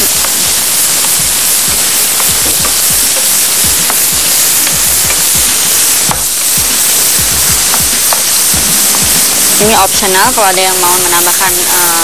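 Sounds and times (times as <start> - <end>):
background music with low thumps: 0.0 - 11.7
vegetables sizzling in a frying pan: 0.0 - 12.0.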